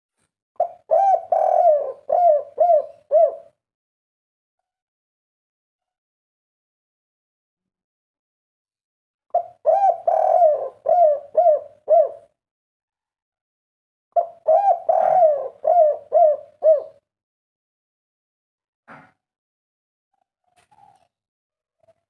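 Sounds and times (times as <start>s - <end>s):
dove cooing: 0.6s - 3.6s, 9.3s - 12.3s, 14.2s - 17.0s.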